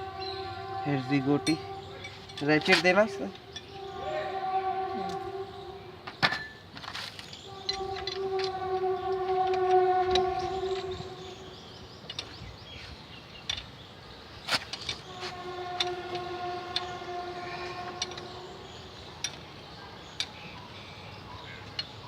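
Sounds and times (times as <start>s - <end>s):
steady horn-like tone: 0.0s - 6.6s, 7.4s - 11.9s, 15.0s - 19.3s.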